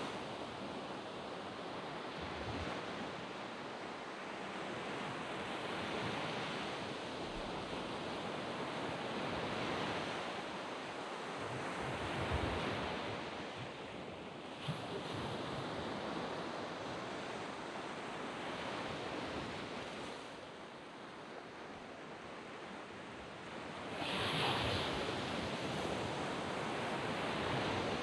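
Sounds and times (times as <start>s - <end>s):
waves breaking on beach: 22.8s - 28.0s.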